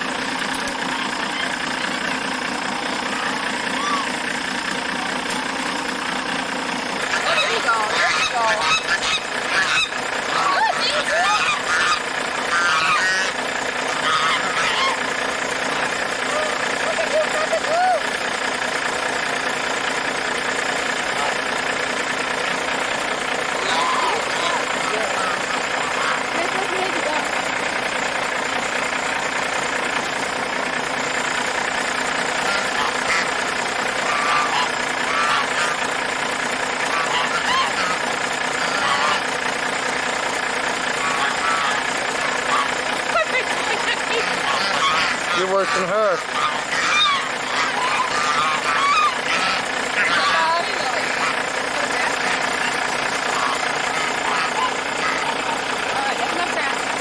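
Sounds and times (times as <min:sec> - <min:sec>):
poultry squawking and honking: 0:02.9 - 0:04.2, 0:06.8 - 0:17.6, 0:20.7 - 0:27.4, 0:32.2 - 0:36.0, 0:36.7 - 0:39.4, 0:40.8 - 0:56.9.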